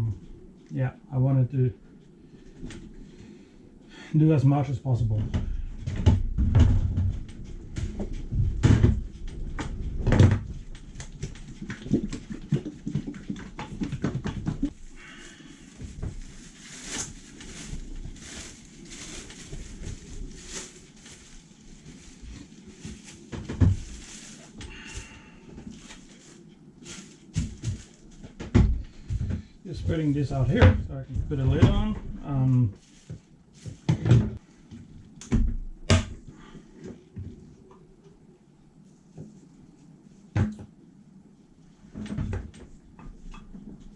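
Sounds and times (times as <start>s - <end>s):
rustling and scraping: 5.1s - 32.0s, 32.7s - 35.2s
objects being handled: 5.9s - 29.5s, 32.8s - 35.1s.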